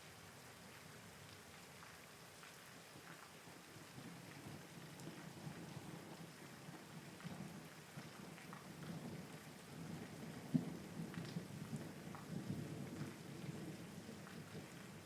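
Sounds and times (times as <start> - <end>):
rain falling: 0.0 - 15.0
low rumbling thunder: 8.8 - 15.0.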